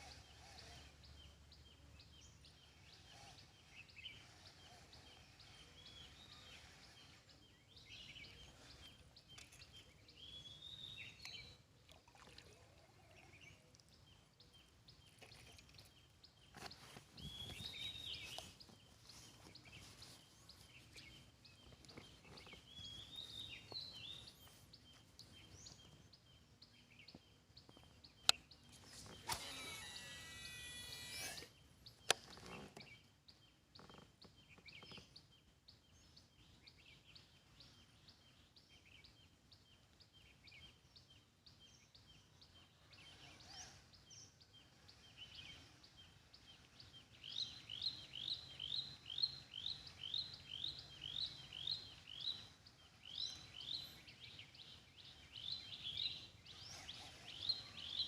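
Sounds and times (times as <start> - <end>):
birds chirping: 0.0 - 58.0
whir: 28.9 - 31.6
sharp clicks: 29.0 - 30.2.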